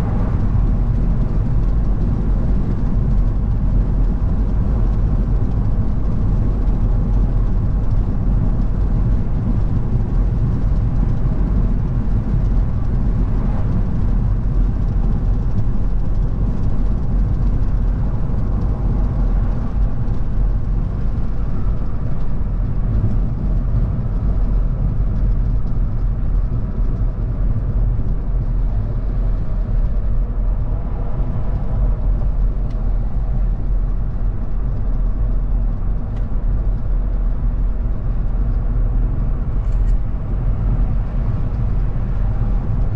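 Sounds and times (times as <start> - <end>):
car engine running: 0.0 - 42.9
tyre and road rumble: 0.0 - 42.9.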